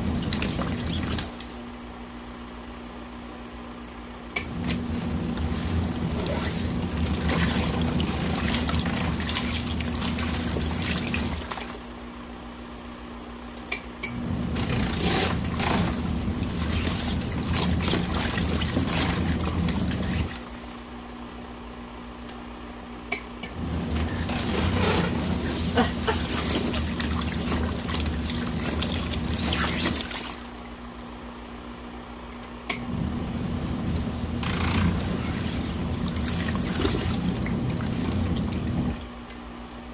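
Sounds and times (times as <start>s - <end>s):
water sloshing: 0.0s - 1.6s, 4.6s - 11.8s, 14.5s - 20.9s, 23.6s - 30.7s, 34.0s - 39.2s
washing machine motor humming: 0.0s - 39.9s.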